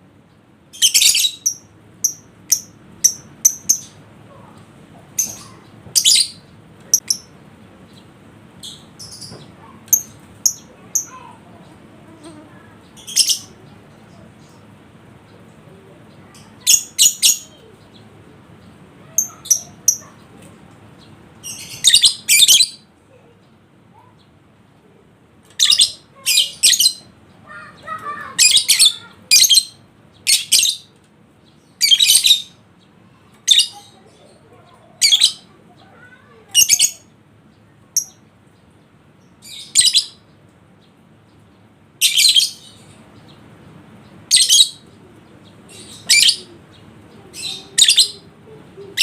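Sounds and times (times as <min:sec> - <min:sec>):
bird high-pitched chirping: 0:00.7 - 0:14.7, 0:16.1 - 0:24.2, 0:25.5 - 0:40.3, 0:40.9 - 0:49.0.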